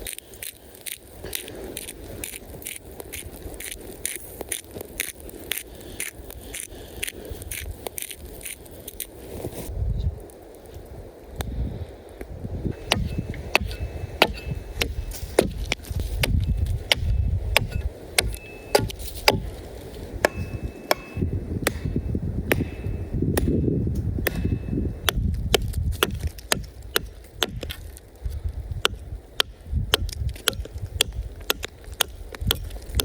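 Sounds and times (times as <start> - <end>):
low rumble: 11.4 - 31.4
blade chopping wood: 12.8 - 19.6, 20.2 - 28.0, 28.8 - 33.0.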